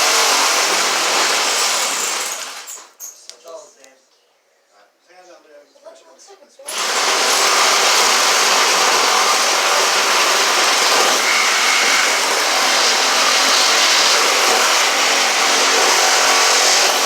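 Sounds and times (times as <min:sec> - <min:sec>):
power tool cutting building material: 0:00.0 - 0:03.0, 0:06.7 - 0:17.0.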